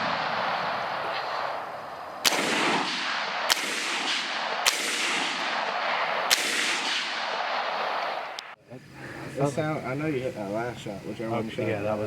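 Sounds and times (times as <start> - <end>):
rifle shots: 0.0 - 1.6, 2.2 - 8.6
steady background hiss: 0.0 - 12.0.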